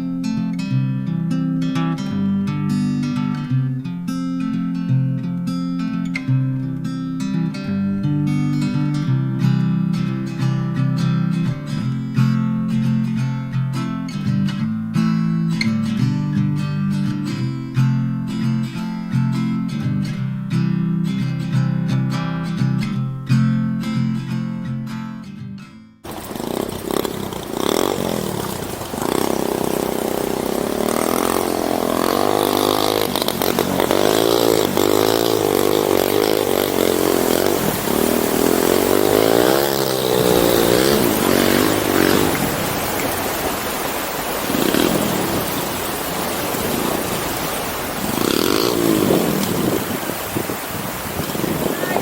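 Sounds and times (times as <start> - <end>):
steady rushing noise: 26.1 - 52.0
vehicle engine revving: 26.1 - 52.0.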